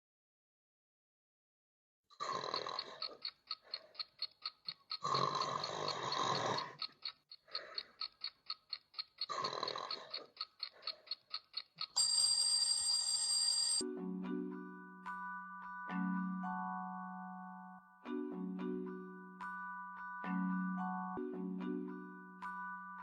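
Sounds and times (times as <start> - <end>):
clock ticking fast: 2.5 - 13.8
person snoring: 5.0 - 6.8
alarm clock bell ringing: 11.9 - 13.8.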